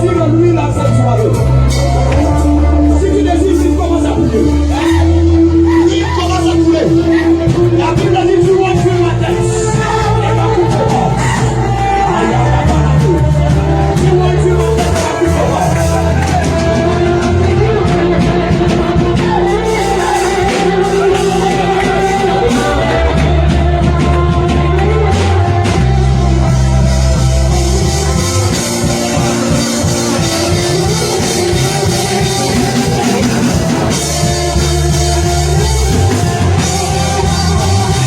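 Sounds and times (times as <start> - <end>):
band with held bass notes: 0.0 - 38.0
drum kit: 0.0 - 38.0
people singing: 1.8 - 38.0.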